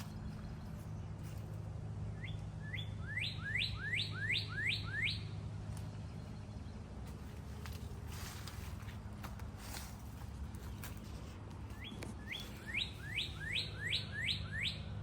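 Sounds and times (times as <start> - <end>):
steady low hum: 0.0 - 15.0
songbird whistling rising notes: 2.1 - 5.4, 11.7 - 15.0.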